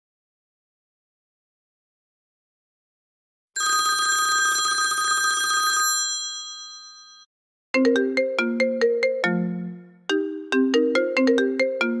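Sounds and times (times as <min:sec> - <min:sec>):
held chime ringtone: 0:03.6 - 0:07.3
ringtone melody of quick notes: 0:07.8 - 0:12.0.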